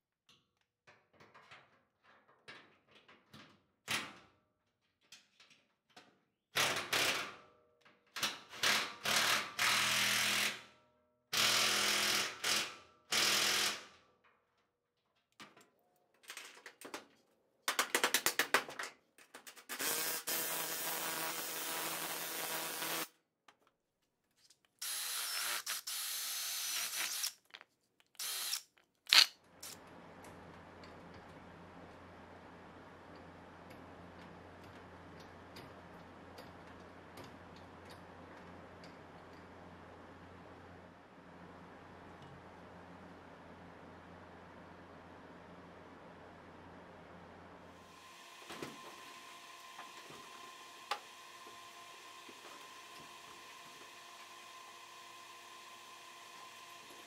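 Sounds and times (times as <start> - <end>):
electric drill running: 19.8 - 23.1, 24.8 - 27.4, 28.2 - 29.8.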